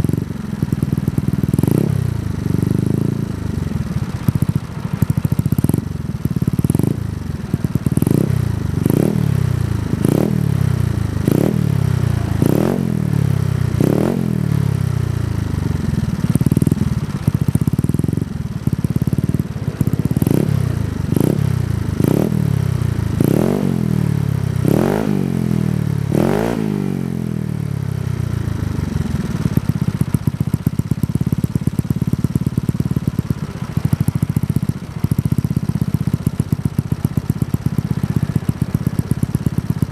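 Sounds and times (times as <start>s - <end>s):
scooter engine revving: 0.0s - 39.9s.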